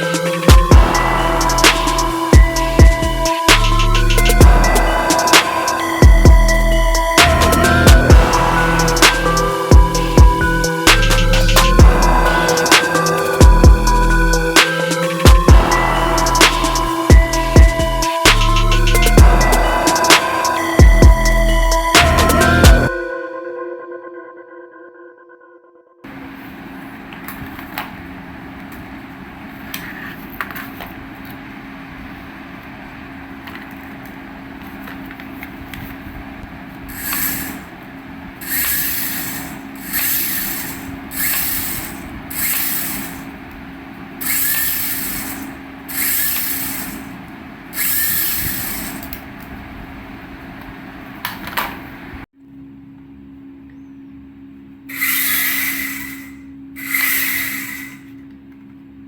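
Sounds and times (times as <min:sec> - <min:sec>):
toy helicopter motor humming: 0:00.0 - 0:22.9, 0:36.8 - 0:43.5, 0:44.2 - 0:49.2, 0:54.9 - 0:58.3
hissing rushes: 0:36.9 - 0:37.8, 0:54.9 - 0:58.1.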